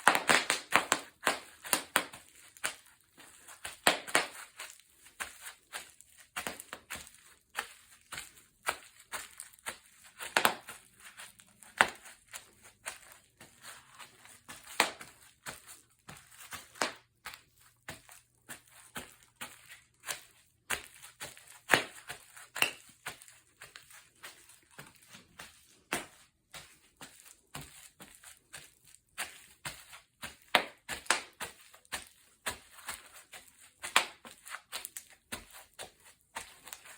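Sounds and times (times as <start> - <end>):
bubble wrap popping underfoot: 0.0 - 36.9.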